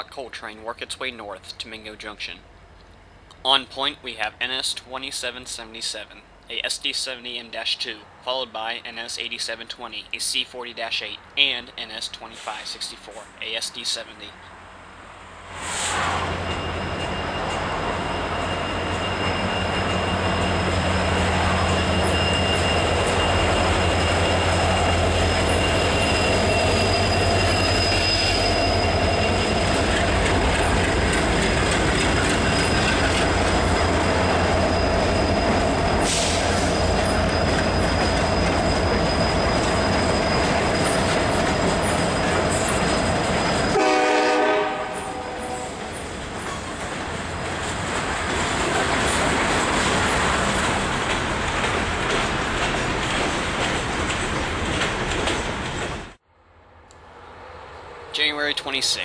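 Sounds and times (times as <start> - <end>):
train low rumble: 0.0 - 59.0
high-pitched wheel squeal: 15.6 - 30.6, 32.2 - 43.8
wheels clattering on rails: 16.4 - 43.8, 45.8 - 56.2.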